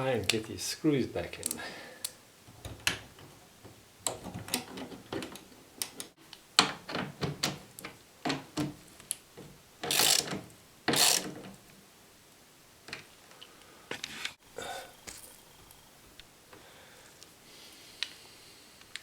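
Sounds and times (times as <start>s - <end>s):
screwdriver clicks and knocks: 2.5s - 11.6s.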